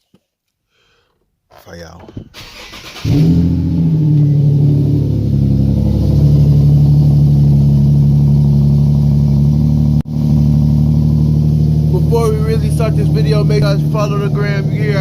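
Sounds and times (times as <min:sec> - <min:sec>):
car engine idling loudly: 0:03.0 - 0:15.0.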